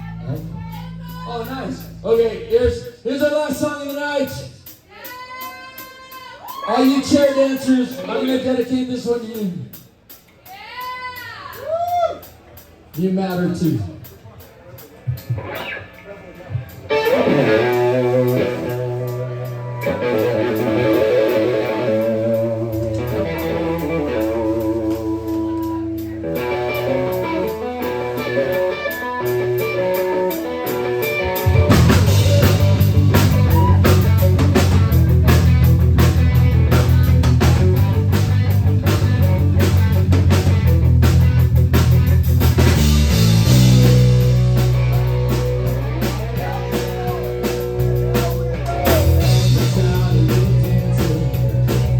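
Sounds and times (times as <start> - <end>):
drum kit: 0.0 - 51.9
live rock band: 0.0 - 51.9
electric guitar: 15.1 - 51.9.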